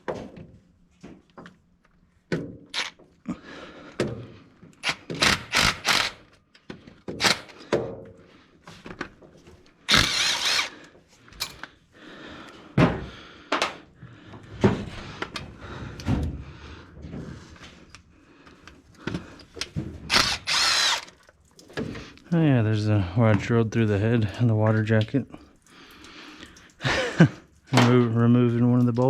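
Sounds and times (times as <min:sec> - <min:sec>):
power tool running: 0:04.8 - 0:06.3, 0:07.2 - 0:07.6, 0:09.9 - 0:10.8, 0:20.1 - 0:21.2
metal tools clanking: 0:11.3 - 0:11.7.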